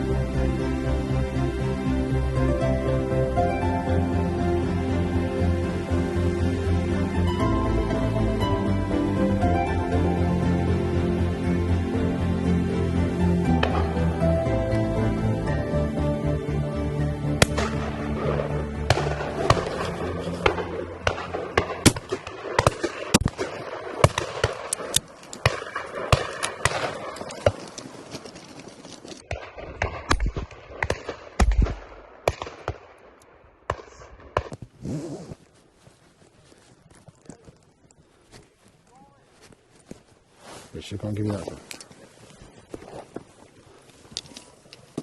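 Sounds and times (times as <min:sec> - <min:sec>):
music: 0:00.0 - 0:23.0
shotgun shots: 0:17.4 - 0:27.6, 0:29.3 - 0:34.5.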